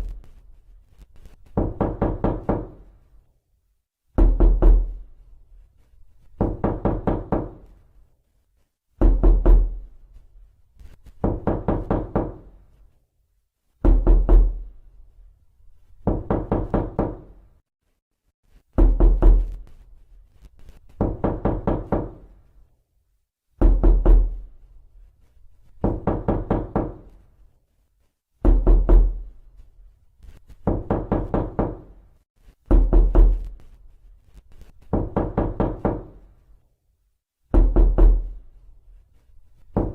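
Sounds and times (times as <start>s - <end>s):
knuckles knocking on door: 1.6s - 2.8s, 6.4s - 7.6s, 9.0s - 9.8s, 11.2s - 12.5s, 16.0s - 17.3s, 21.0s - 22.2s, 23.6s - 24.4s, 25.8s - 27.1s, 28.4s - 29.2s, 30.6s - 31.9s, 32.7s - 33.5s, 34.9s - 36.2s, 37.6s - 38.2s.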